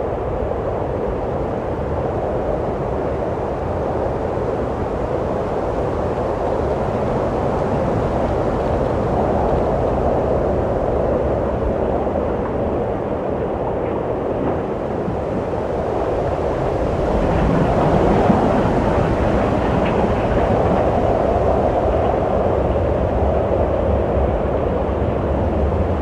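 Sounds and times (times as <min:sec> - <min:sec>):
wind blowing: 0:00.0 - 0:26.0.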